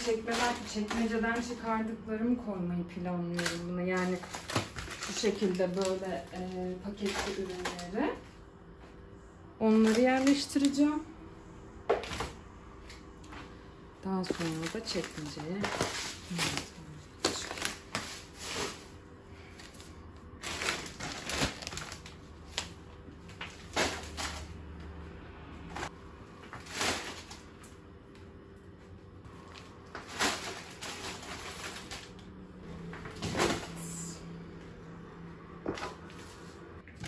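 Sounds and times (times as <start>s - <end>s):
packet rustling: 3.3s - 8.2s, 9.7s - 10.8s, 14.2s - 18.9s, 19.5s - 24.6s, 29.4s - 32.3s.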